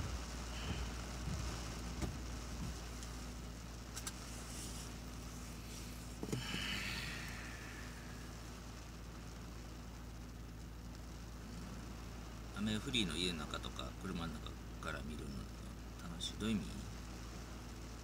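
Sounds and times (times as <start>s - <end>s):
dull thump: 0.0s - 2.9s, 6.2s - 6.7s
car engine idling: 0.0s - 18.0s
heavy rain on car: 0.0s - 18.0s.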